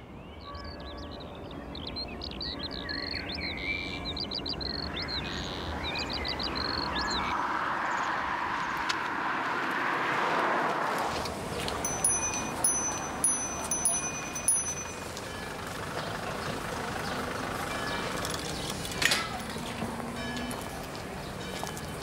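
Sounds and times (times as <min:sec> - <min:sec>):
small birds chirping: 0:00.0 - 0:08.1.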